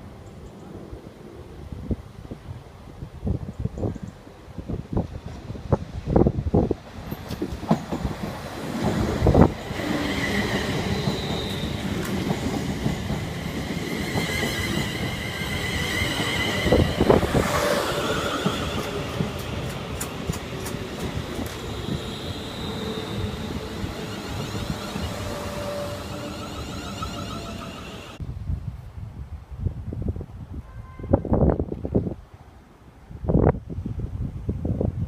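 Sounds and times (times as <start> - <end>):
electric train rumbling past: 4.7 - 28.2.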